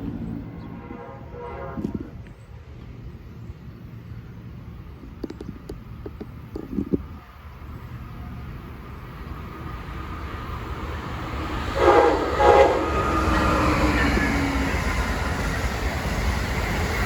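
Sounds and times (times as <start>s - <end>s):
train horn blasts: 0.0s - 2.2s, 11.7s - 14.9s
train rumble: 0.0s - 17.0s.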